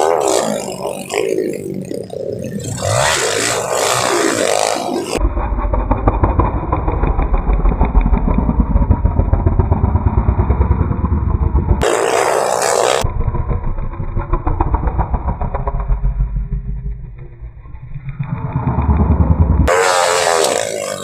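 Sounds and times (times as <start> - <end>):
motorcycle engines racing: 0.0 - 13.6, 18.5 - 21.0.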